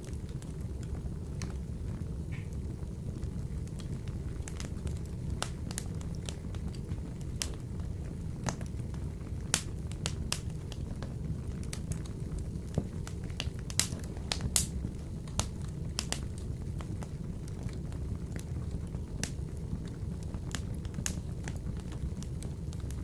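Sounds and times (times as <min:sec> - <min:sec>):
fire crackling and popping: 0:00.0 - 0:23.0
wood fire rumbling: 0:00.0 - 0:23.0.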